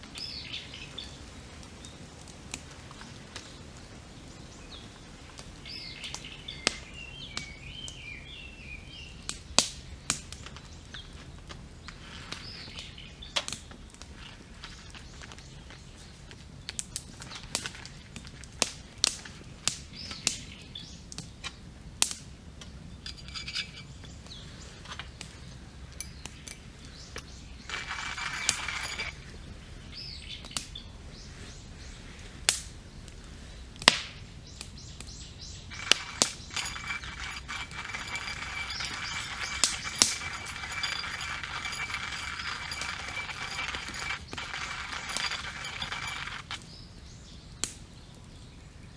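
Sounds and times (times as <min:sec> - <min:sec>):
campfire crackling and popping: 0:00.0 - 0:08.0, 0:08.6 - 0:12.0, 0:12.6 - 0:23.6
birds chirping: 0:34.4 - 0:47.5.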